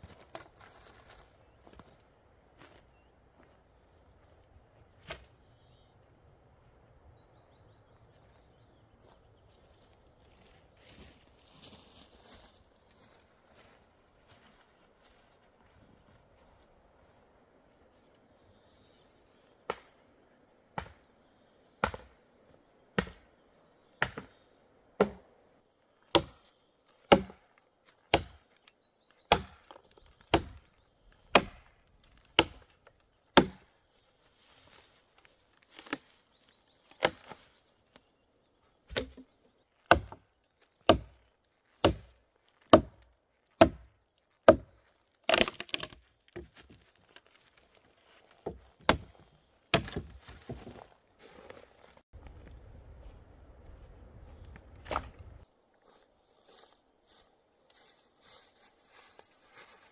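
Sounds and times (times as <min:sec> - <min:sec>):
wood chopping blows: 0:27.1 - 0:27.4, 0:29.3 - 0:30.6, 0:31.3 - 0:31.7, 0:33.4 - 0:33.7, 0:39.9 - 0:40.2, 0:41.8 - 0:42.1, 0:42.7 - 0:43.0, 0:43.6 - 0:43.9
wood splintering cracks: 0:45.2 - 0:46.1.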